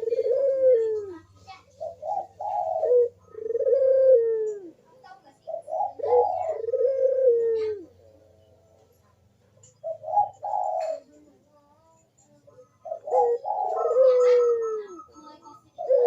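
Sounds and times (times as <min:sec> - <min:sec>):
dove cooing: 0:00.0 - 0:16.0.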